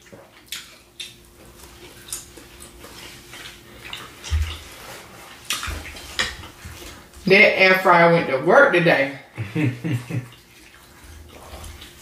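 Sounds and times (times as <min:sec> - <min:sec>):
wet chewing and mouth smacks: 0:00.0 - 0:07.2, 0:10.2 - 0:12.0.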